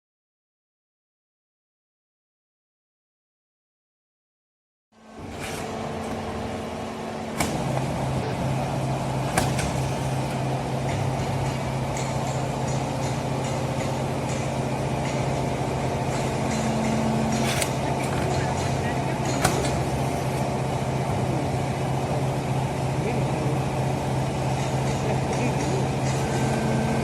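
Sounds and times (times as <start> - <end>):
baling press machine hum: 5.0 - 27.0
sharp clicks and knocks: 9.2 - 15.2, 17.3 - 20.5.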